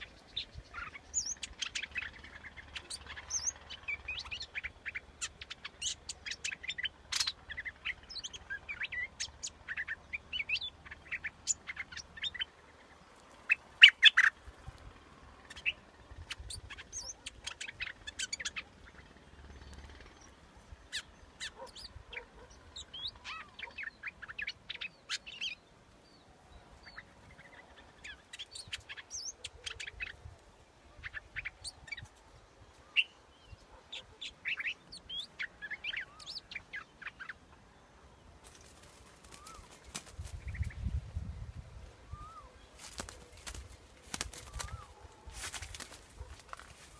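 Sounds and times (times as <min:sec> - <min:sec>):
bulbul chirping song: 0:00.0 - 0:12.7, 0:13.4 - 0:14.4, 0:38.4 - 0:40.9, 0:42.1 - 0:46.9.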